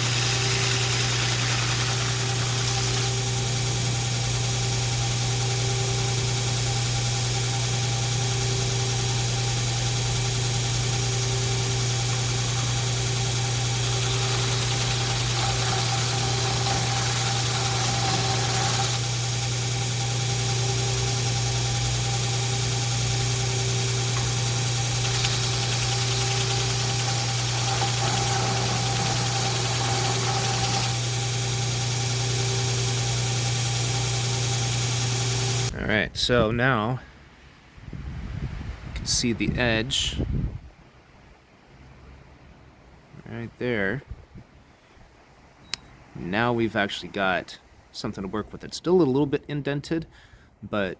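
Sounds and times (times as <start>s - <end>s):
belt grinder motor hum: 0.0s - 35.7s
grinding hiss: 0.0s - 35.7s.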